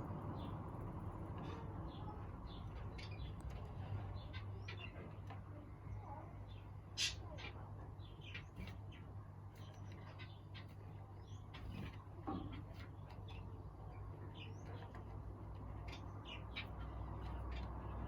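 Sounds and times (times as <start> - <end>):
birds chirping and calling: 6.5 - 18.0.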